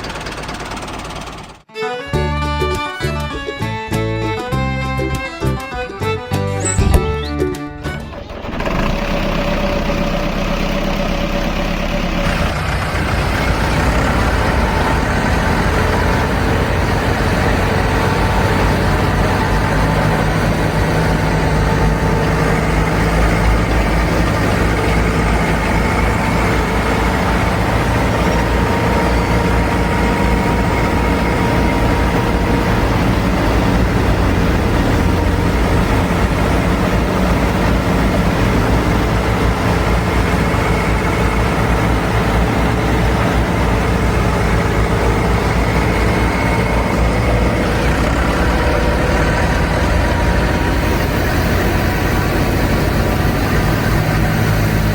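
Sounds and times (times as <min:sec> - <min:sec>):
threshing machine motor running: 0:06.7 - 0:54.9.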